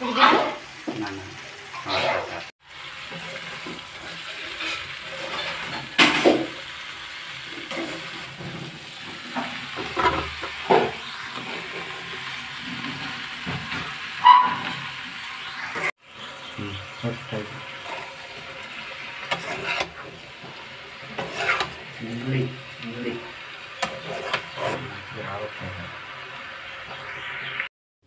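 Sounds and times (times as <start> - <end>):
prawns sizzling in a wok: 0.0 - 27.7
spatula scraping a pan: 1.6 - 15.9, 17.3 - 25.1.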